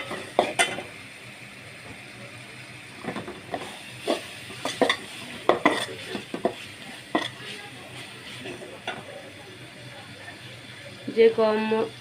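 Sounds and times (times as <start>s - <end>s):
spice paste sizzling in oil: 0.0s - 12.0s
spatula scraping and knocking pan: 3.0s - 9.1s.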